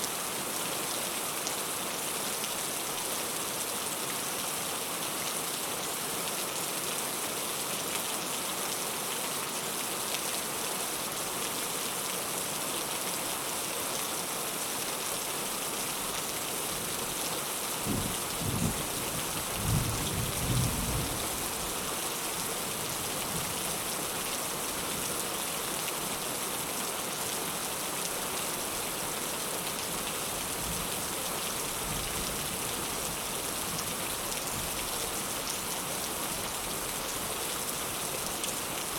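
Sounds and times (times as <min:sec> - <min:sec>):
heavy rain: 0:00.0 - 0:38.9
low rumble of thunder: 0:17.9 - 0:21.4.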